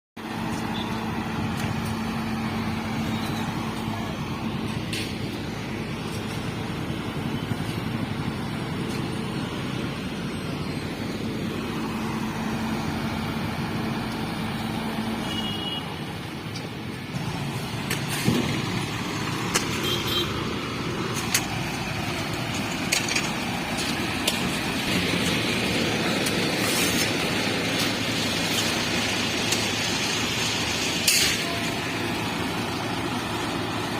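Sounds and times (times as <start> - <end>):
heavy diesel engines running: 0.2 - 33.9.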